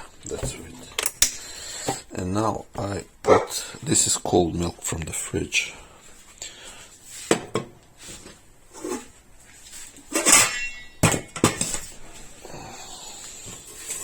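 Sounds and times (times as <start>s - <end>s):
kitchenware knocking and clinking: 10.1s - 11.9s.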